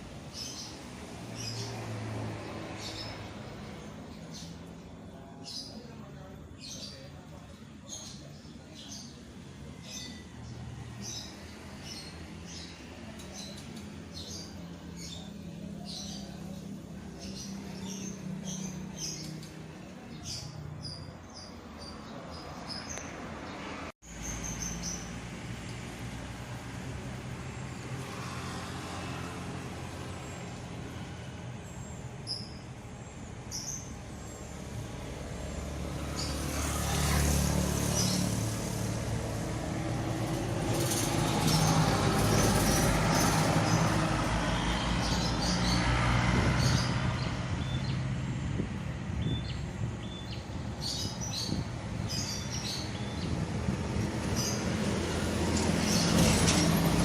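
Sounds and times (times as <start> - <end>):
small birds chirping: 0.0 - 57.0
wind gusting through trees: 8.8 - 57.0.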